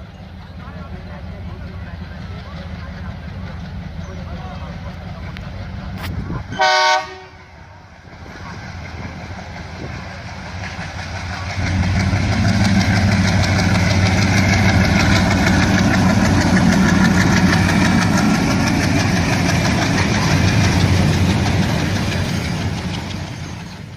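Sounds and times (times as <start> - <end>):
diesel engine running: 0.0 - 23.9
locomotive horn blast: 6.5 - 7.7.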